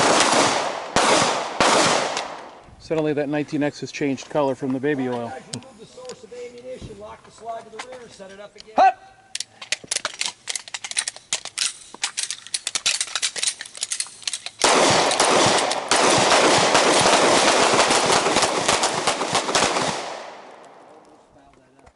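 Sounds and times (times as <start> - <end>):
handgun shots: 14.6 - 20.3.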